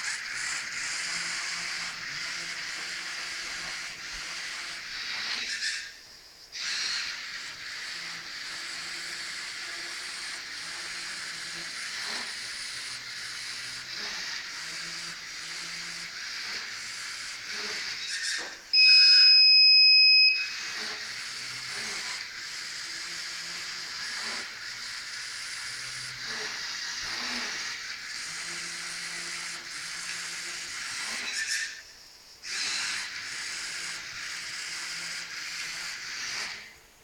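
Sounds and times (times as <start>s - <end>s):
electronic buzzer beep: 18.7s - 20.7s.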